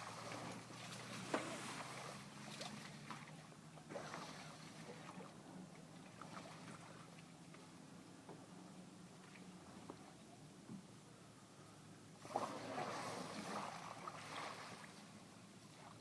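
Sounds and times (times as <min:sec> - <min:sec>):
water sounds: 0:00.0 - 0:07.9, 0:12.2 - 0:16.0.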